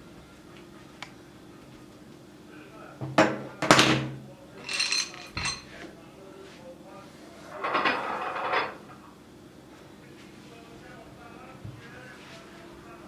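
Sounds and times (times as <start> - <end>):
dishes and cutlery clinking: 3.0 - 5.9, 7.5 - 9.0.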